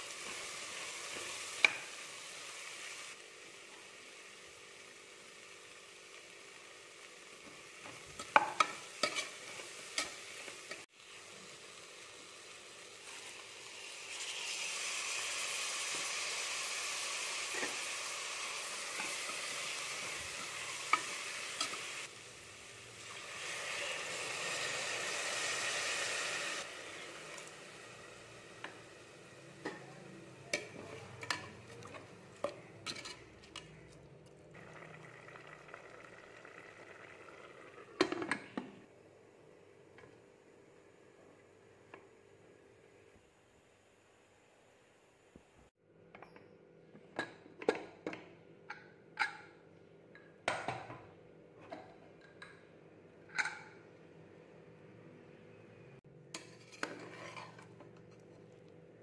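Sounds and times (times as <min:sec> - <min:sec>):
food sizzling in a pot: 0:00.0 - 0:33.4, 0:34.5 - 0:43.0
spoon scraping and tapping pot: 0:08.2 - 0:09.3, 0:30.5 - 0:34.0, 0:56.3 - 0:58.5.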